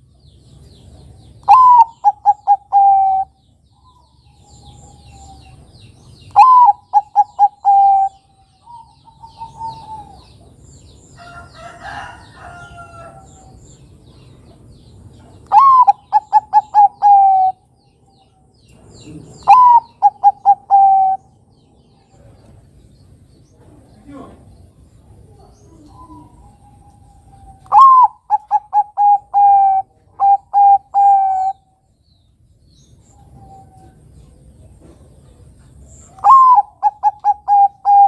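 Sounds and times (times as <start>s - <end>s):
small birds chirping: 0.0s - 38.0s
dove cooing: 1.4s - 5.7s, 6.3s - 10.5s, 15.5s - 17.6s, 19.4s - 21.4s, 25.2s - 31.7s, 36.1s - 38.0s.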